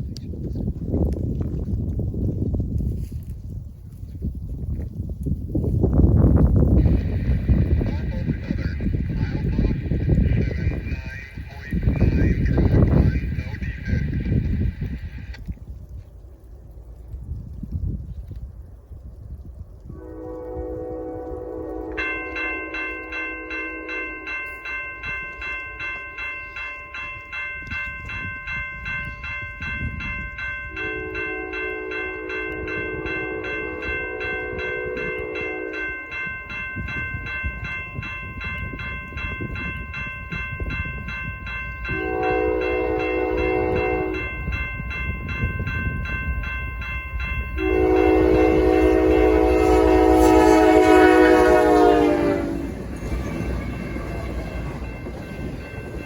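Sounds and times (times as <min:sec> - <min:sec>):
train rumble: 0:04.8 - 0:17.4, 0:19.9 - 0:56.0
crossing bell ringing: 0:06.6 - 0:15.3, 0:20.3 - 0:56.0
locomotive air horn blasts: 0:19.9 - 0:24.3, 0:30.8 - 0:36.0, 0:41.9 - 0:44.4, 0:47.6 - 0:54.7.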